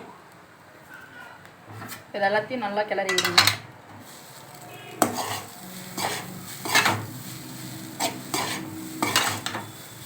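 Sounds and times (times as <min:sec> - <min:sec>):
spoon scraping a pan: 0:03.1 - 0:10.0
rice sizzling in a pan: 0:04.0 - 0:10.0.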